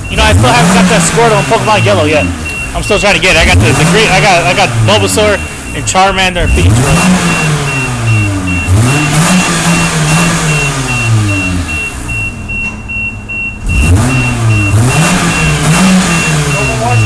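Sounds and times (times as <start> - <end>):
car engine revving: 0.0 - 17.0
fast repeating high beep: 0.0 - 17.0.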